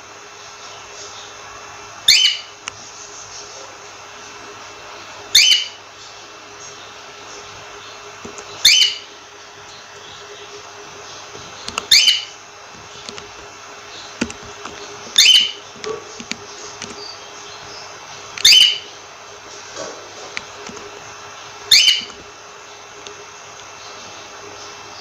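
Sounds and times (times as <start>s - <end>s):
cockatiel chirping: 2.1s - 2.6s, 5.3s - 5.8s, 8.5s - 9.2s, 11.7s - 12.4s, 15.1s - 16.0s, 18.4s - 19.0s, 21.7s - 22.2s.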